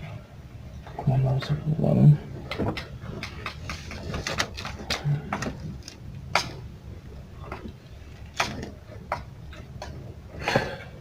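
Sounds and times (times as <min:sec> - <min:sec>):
small hard objects clicking: 0:02.5 - 0:06.6.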